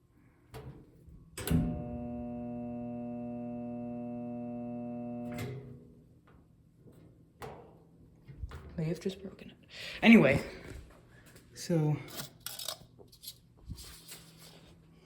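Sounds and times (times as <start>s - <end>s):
washing machine electrical buzz: 1.4s - 6.0s.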